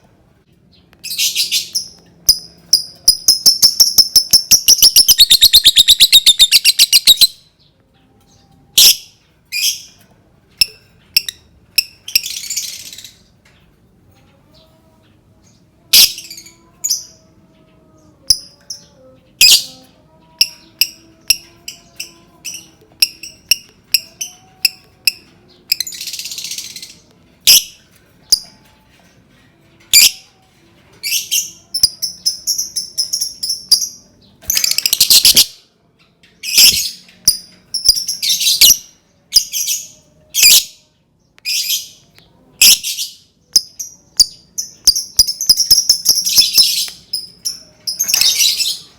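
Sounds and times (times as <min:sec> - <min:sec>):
lovebird chirping: 0:01.0 - 0:07.4, 0:18.2 - 0:28.7, 0:31.0 - 0:35.6, 0:36.4 - 0:40.7, 0:42.6 - 0:48.9
lovebird chattering rattles: 0:34.5 - 0:35.5, 0:43.5 - 0:48.8.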